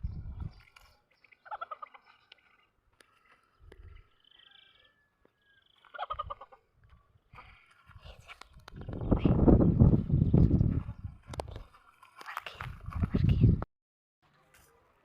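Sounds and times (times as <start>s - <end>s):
thin high fowl calls: 1.3s - 2.6s, 4.2s - 6.6s
fowl rattling calls: 1.4s - 2.6s, 5.8s - 6.6s.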